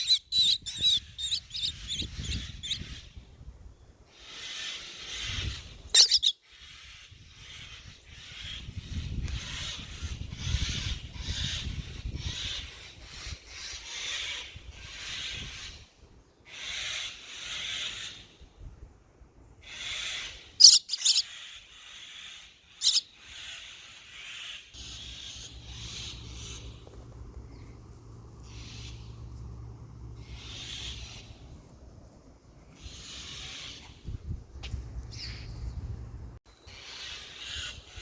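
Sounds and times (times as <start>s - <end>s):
sharp high chirps: 0.0s - 2.8s, 6.0s - 6.3s, 20.6s - 21.2s, 22.8s - 23.0s
baby bird raspy calls: 0.0s - 3.0s, 4.2s - 8.5s, 19.6s - 26.7s.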